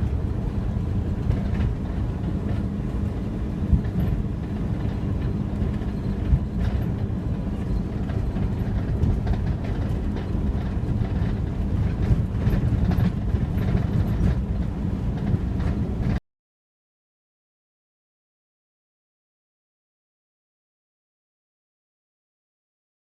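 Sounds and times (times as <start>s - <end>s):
vehicle rumbling in motion: 0.0s - 16.2s.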